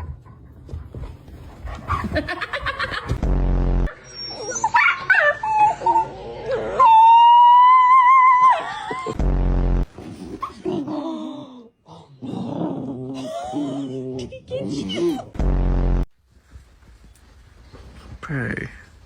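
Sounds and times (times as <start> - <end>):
dog whining and yipping: 4.0 - 6.0.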